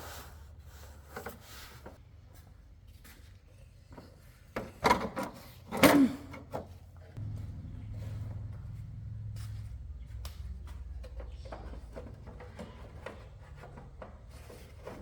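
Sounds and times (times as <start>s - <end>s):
low steady hum: 7.2s - 13.2s.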